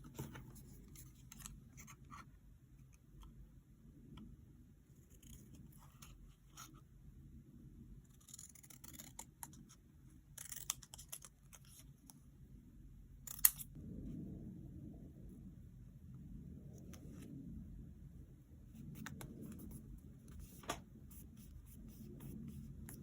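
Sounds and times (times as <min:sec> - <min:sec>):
scissors snipping paper: 0:10.3 - 0:11.8.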